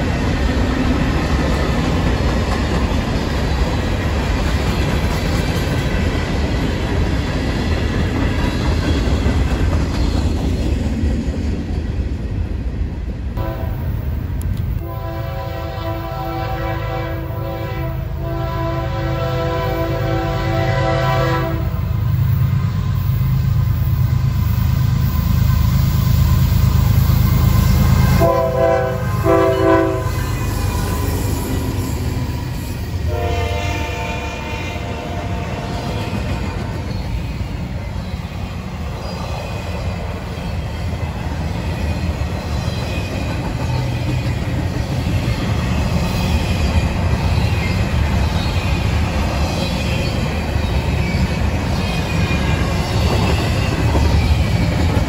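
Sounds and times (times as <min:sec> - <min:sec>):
diesel locomotive engine rumble: 0:00.0 - 0:55.0
train horn blasts: 0:13.4 - 0:14.1, 0:14.8 - 0:22.0, 0:28.0 - 0:31.0, 0:33.1 - 0:35.9.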